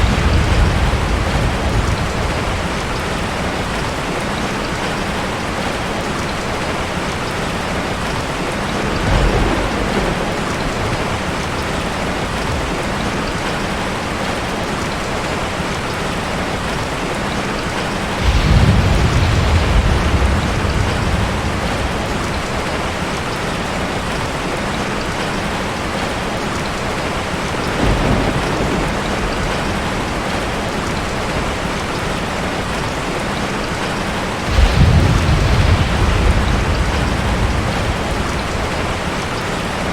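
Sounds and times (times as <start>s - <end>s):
thunder rolling: 0.0s - 5.2s, 8.1s - 14.2s, 18.0s - 24.2s, 27.4s - 39.9s
heavy rain: 0.0s - 39.9s.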